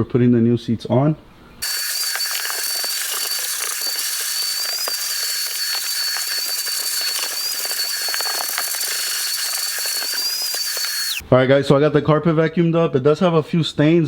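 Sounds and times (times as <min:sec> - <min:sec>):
debris ticking and crackling: 0:01.6 - 0:11.2
vacuum cleaner running: 0:01.6 - 0:11.2.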